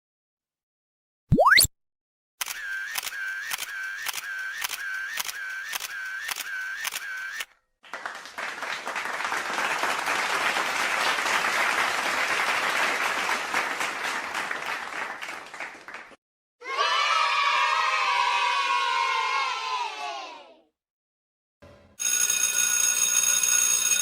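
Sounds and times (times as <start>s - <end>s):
clatter of overlapping claps: 7.8s - 16.2s.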